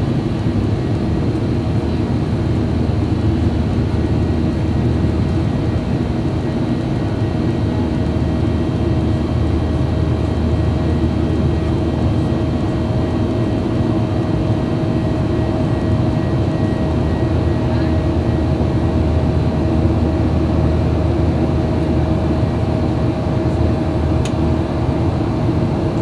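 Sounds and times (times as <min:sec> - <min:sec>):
airplane engine drone in cabin: 0:00.0 - 0:26.0.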